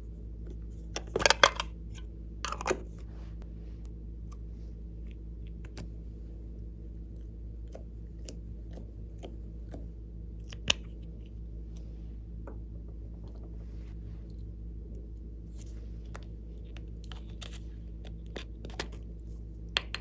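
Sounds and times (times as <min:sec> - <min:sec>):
steady low hum: 0:00.0 - 0:20.0
slime squishing with clicks: 0:07.0 - 0:11.3, 0:15.6 - 0:20.0.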